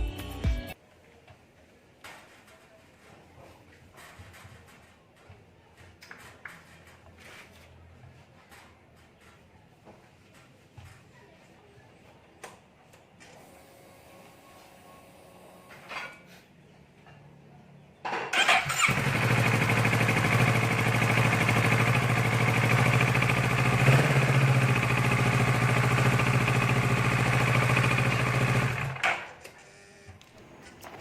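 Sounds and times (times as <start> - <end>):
motorcycle engine starting and idling: 18.3 - 29.4, 30.2 - 31.0.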